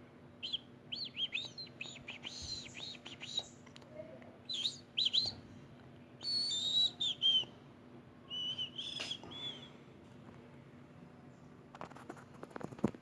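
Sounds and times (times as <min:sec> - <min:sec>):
faint steady hum: 0:00.0 - 0:13.0
bird chirping: 0:00.4 - 0:03.6, 0:04.5 - 0:05.4.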